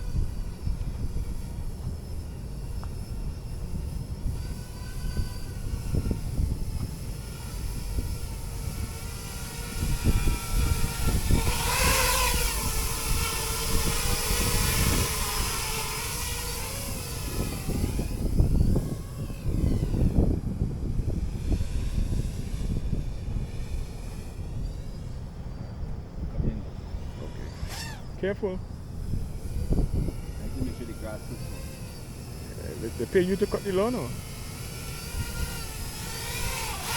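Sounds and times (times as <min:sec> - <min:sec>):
rc helicopter rotor whine: 0:00.0 - 0:36.9
wind buffeting microphone: 0:00.0 - 0:36.9.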